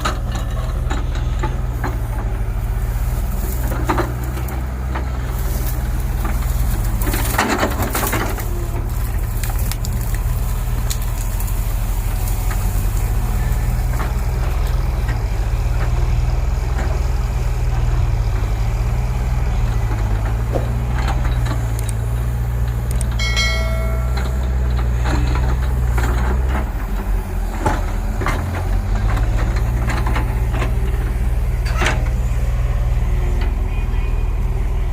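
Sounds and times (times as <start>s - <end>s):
diesel machine engine running: 0.0s - 34.9s
short high tone: 23.2s - 24.6s.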